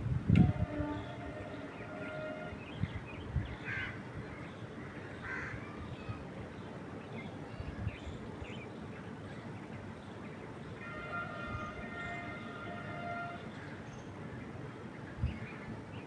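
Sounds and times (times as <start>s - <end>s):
wind in the trees: 0.0s - 4.4s.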